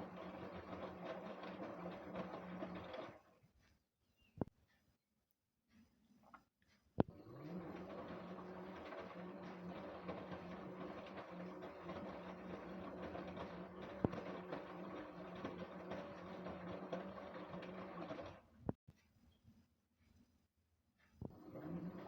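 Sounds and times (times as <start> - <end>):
washing machine humming: 0.0 - 3.4, 7.0 - 18.8, 21.3 - 22.0.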